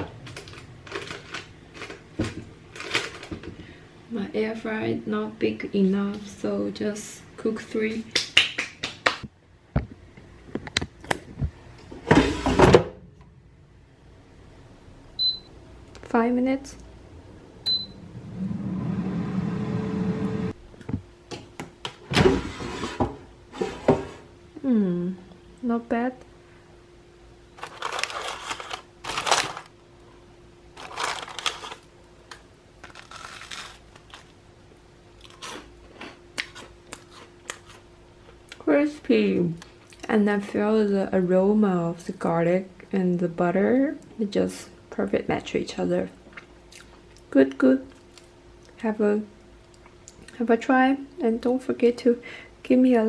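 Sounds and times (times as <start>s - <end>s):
drawer sliding clunk: 12.0s - 12.9s
garlic bread crunching: 30.8s - 34.4s, 35.2s - 37.8s.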